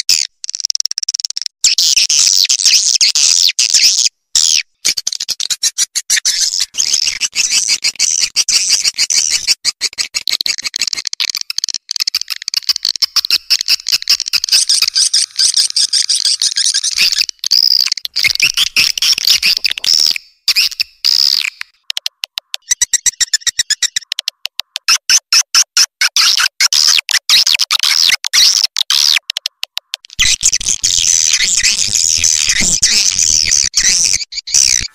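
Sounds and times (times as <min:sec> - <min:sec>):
swiftlets twittering: 0:12.6 - 0:25.2.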